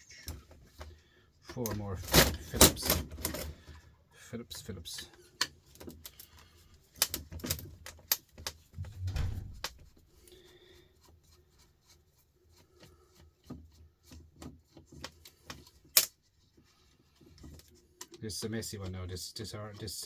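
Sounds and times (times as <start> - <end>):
dull thud: 8.8 - 9.7.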